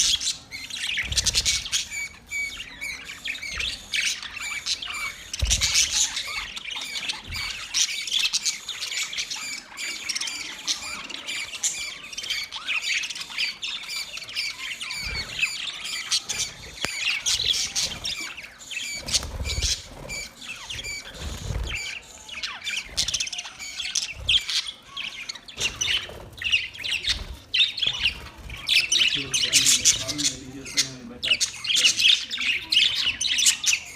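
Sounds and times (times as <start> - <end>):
budgerigars chattering: 0.0 - 33.9.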